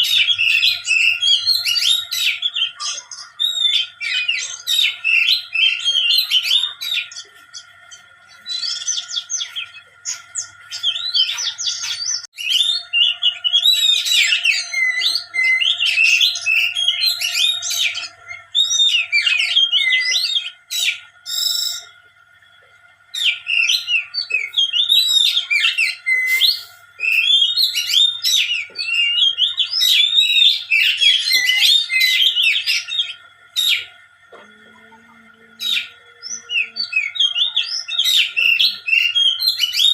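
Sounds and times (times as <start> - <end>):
songbird chirping and twittering: 0.0 - 39.9.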